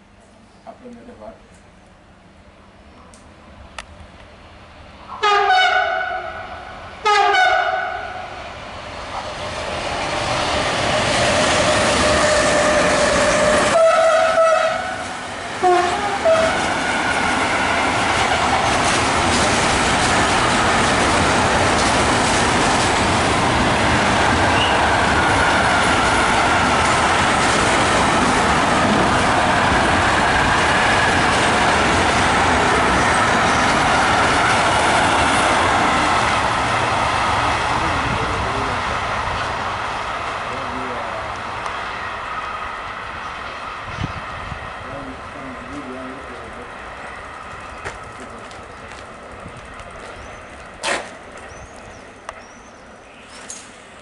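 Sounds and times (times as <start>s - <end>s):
freight train rumbling past: 0.0s - 54.0s
locomotive horn blasts: 5.2s - 8.2s, 11.6s - 16.7s.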